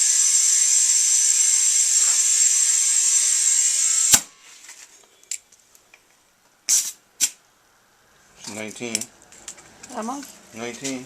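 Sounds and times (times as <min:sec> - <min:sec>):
compressed air hissing into tire: 0:00.0 - 0:04.3.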